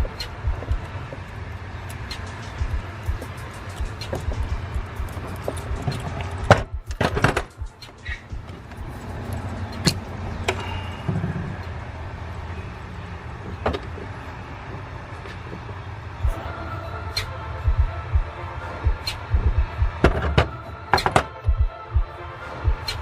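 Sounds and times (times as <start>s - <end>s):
background music with low beat: 0.0s - 9.9s, 16.2s - 23.0s
hand tools clicking and knocking: 0.0s - 10.8s.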